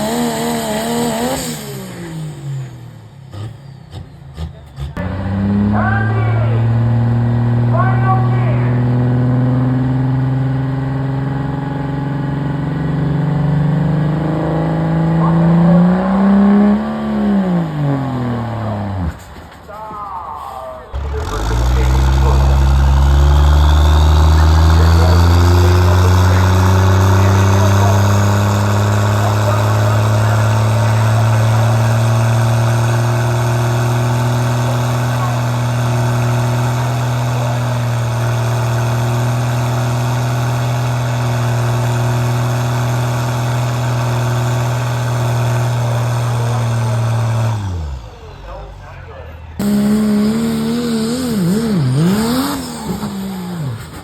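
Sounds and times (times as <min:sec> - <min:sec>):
diesel engine at full throttle: 0:00.0 - 0:54.0.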